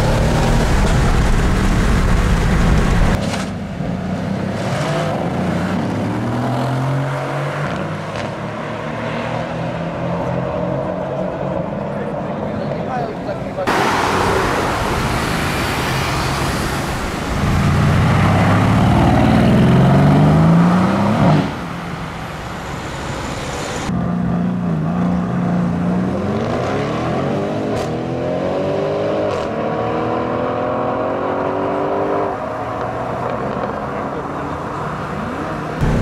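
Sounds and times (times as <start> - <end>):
car engine revving: 0.0 - 3.2, 13.7 - 36.0.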